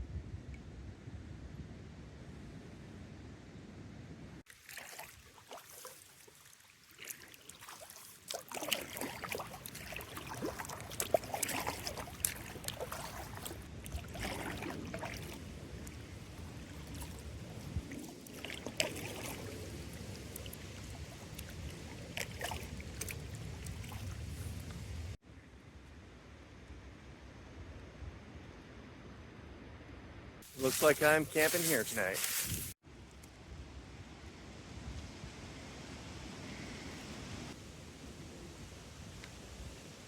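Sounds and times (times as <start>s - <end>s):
paddle splashing in water: 4.5s - 24.9s, 30.4s - 32.8s.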